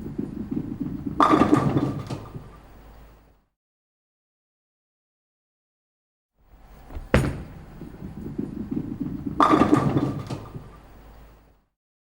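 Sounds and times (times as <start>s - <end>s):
sharp knocks: 6.8s - 8.2s.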